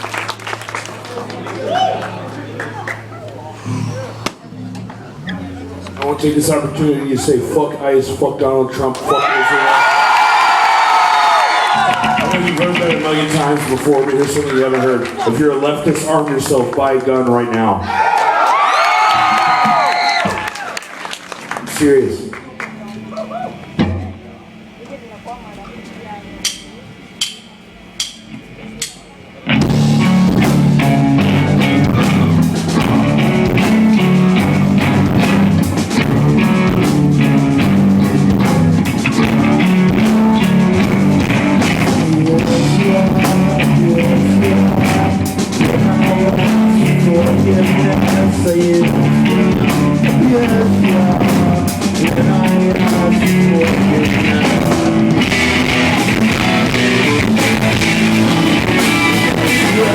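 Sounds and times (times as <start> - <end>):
rock band playing: 9.6 - 16.1, 28.8 - 59.9.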